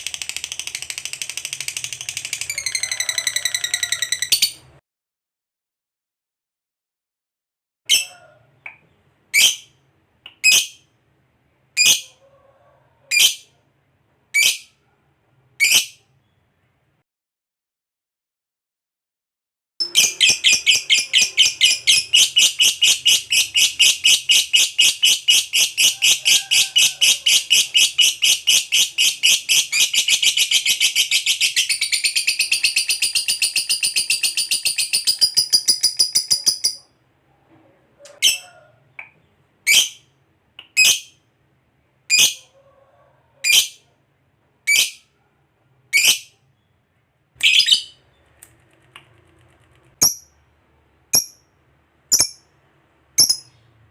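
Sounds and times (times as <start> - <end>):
sharp high bird chirps: 19.8 - 26.2, 26.8 - 36.9, 47.4 - 48.1, 52.1 - 52.5, 53.2 - 53.7
lovebird chattering trill: 19.8 - 36.8, 53.2 - 53.6.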